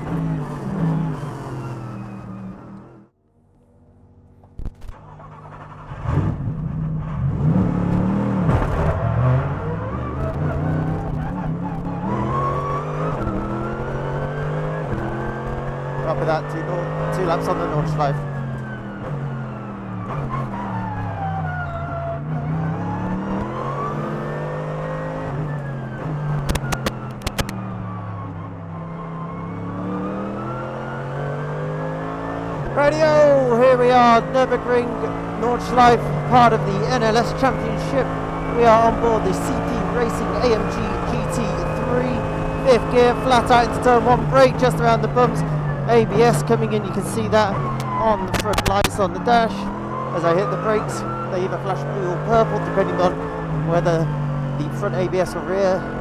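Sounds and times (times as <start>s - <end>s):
race car engine revving: 0.0s - 3.1s, 4.6s - 56.0s
clicks: 4.4s - 5.5s, 26.3s - 27.6s, 47.5s - 49.0s.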